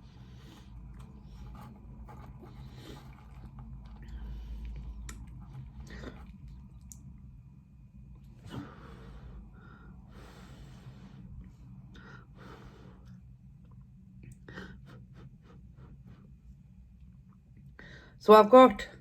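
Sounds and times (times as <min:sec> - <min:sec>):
faint low hum: 0:00.0 - 0:19.0
breaths: 0:08.4 - 0:13.2, 0:17.8 - 0:18.2.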